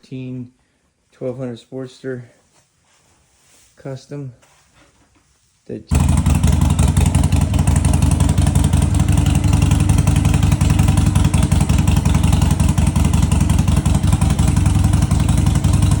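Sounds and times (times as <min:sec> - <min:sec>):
motorcycle engine rumbling: 0:05.9 - 0:16.0.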